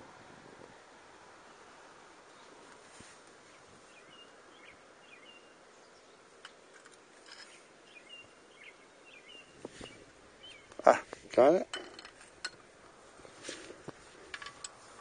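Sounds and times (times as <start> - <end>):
soft steady hiss: 0.0 - 15.0
small bird chirps: 7.3 - 10.9.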